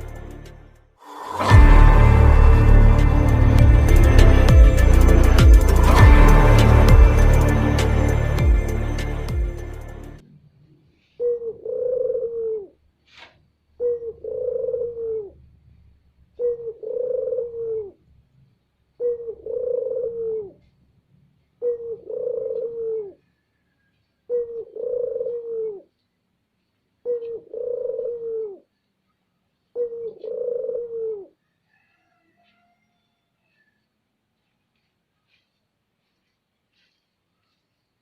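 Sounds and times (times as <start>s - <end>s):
dove cooing: 11.2s - 12.8s, 13.8s - 15.6s, 16.4s - 18.0s, 19.0s - 20.7s, 21.6s - 23.3s, 24.3s - 25.9s, 27.0s - 28.7s, 29.8s - 32.0s.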